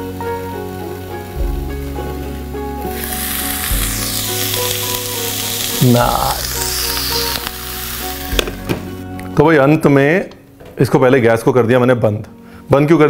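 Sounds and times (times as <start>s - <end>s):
vegetables sizzling in oil: 0.0s - 9.1s.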